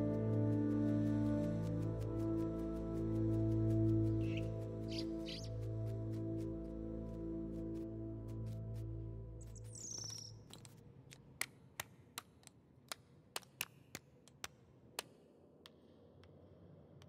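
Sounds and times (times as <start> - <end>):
bird chirp: 4.1 - 5.9, 9.4 - 10.5.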